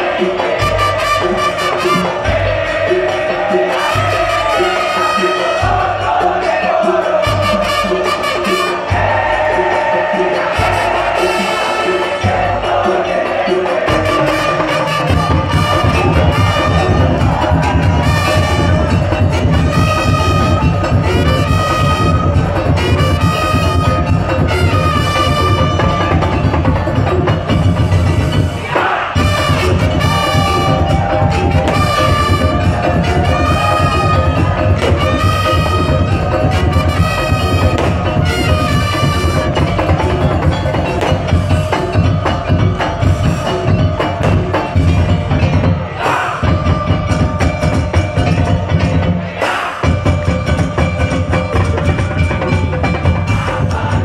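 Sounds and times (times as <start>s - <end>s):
horn-like melody: 0.0s - 42.2s
heavy drum beat: 0.0s - 54.0s
percussion ensemble playing loudly: 0.0s - 54.0s
wood block strikes: 28.7s - 54.0s.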